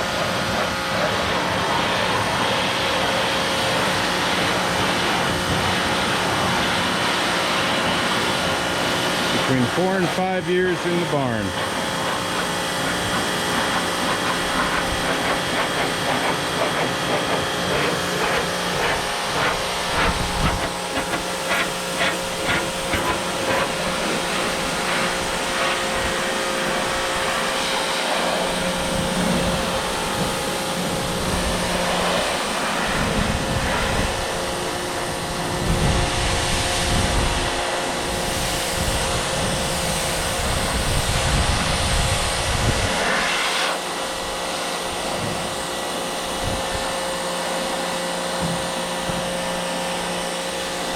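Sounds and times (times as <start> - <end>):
motor-driven machine hissing: 9.4 - 25.6.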